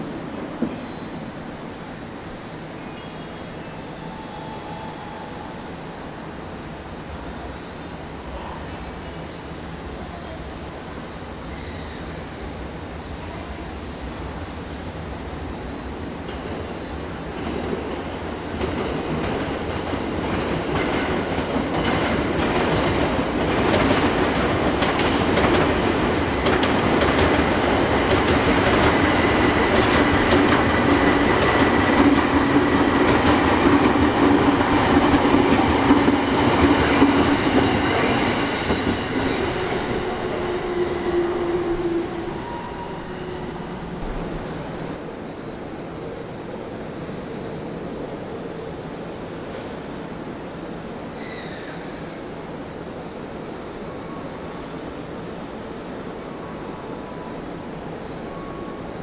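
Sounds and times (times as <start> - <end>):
train rumble: 0.0 - 59.0
train wheels clacking: 17.4 - 45.0.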